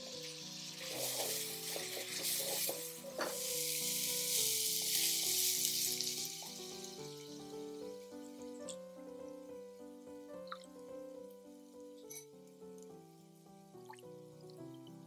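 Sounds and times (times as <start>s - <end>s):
onion sizzling in a frying pan: 0.0s - 8.7s
spatula scraping a pan: 0.8s - 3.8s.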